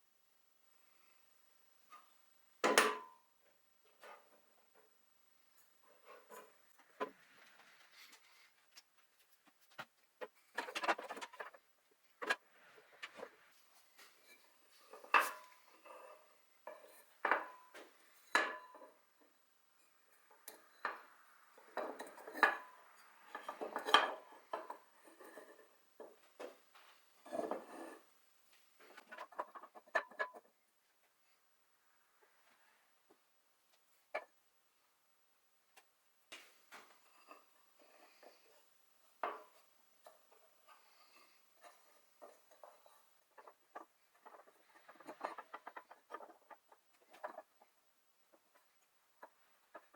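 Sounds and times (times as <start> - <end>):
hard objects knocking and clattering: 8.8 - 13.4, 28.9 - 30.6, 39.1 - 49.9.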